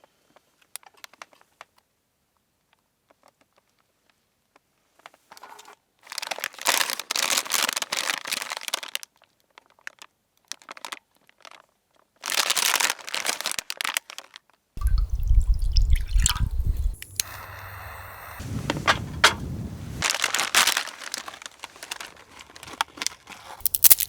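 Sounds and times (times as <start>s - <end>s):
crinkling and crunching: 6.1s - 8.9s, 12.2s - 14.2s, 14.8s - 24.0s.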